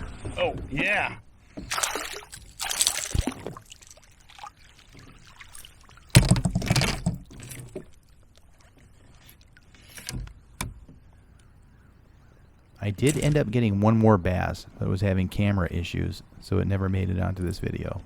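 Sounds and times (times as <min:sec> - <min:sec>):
water splashing beside kayak: 0:01.4 - 0:09.9.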